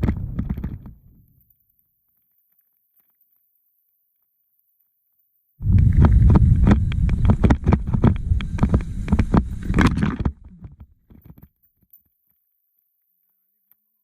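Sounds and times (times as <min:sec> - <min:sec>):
wind rumble on microphone: 0:05.6 - 0:10.9.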